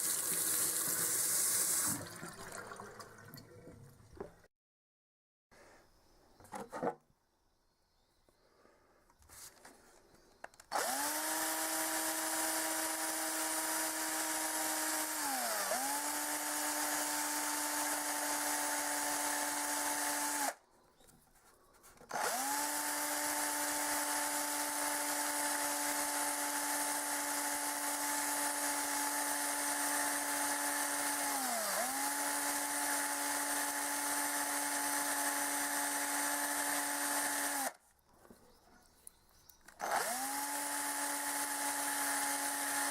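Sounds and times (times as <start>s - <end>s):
power tool motor running: 10.7s - 20.6s, 22.1s - 37.8s, 39.8s - 42.9s.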